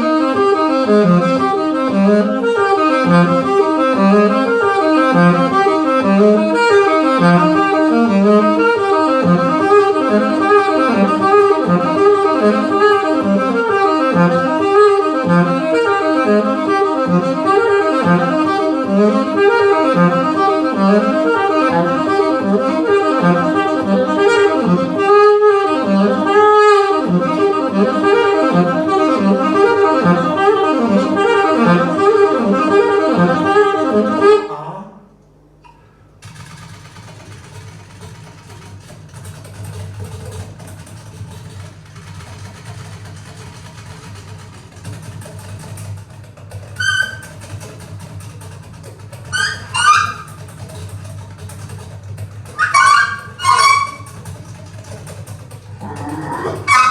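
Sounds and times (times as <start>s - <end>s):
live jazz band playing: 0.0s - 34.4s, 46.7s - 55.8s, 56.4s - 56.9s
lead horn line: 0.0s - 34.6s, 46.8s - 47.5s, 49.3s - 50.6s, 52.5s - 54.4s, 56.3s - 56.9s.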